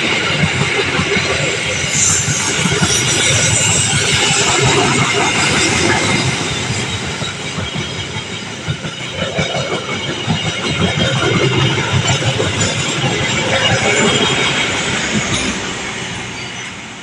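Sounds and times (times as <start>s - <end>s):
train rumbling past: 0.0s - 17.0s
train wheels clattering on rails: 0.0s - 17.0s.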